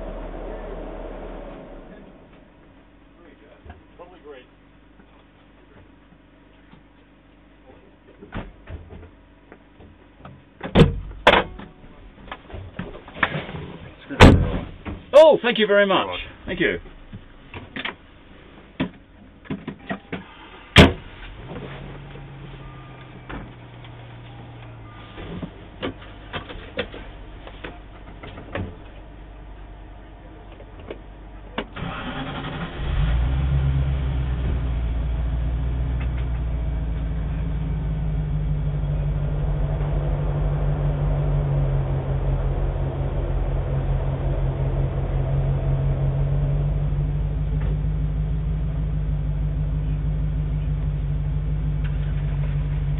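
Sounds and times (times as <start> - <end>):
vehicle engine starting and idling: 0.0 - 4.4, 20.1 - 52.9.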